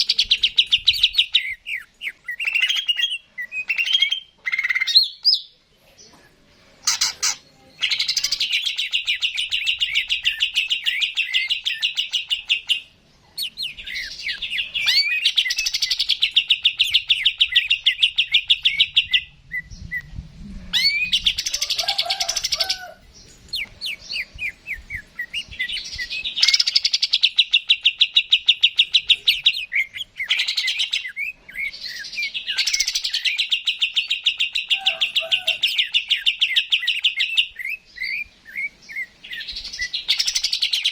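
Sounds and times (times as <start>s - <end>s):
bird singing rapid high trills: 23.8s - 40.9s.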